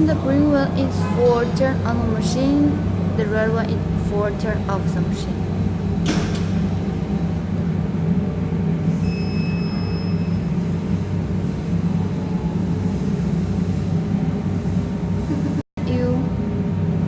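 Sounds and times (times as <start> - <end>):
low electrical hum: 0.0 - 17.0
electronic beep: 9.0 - 10.4.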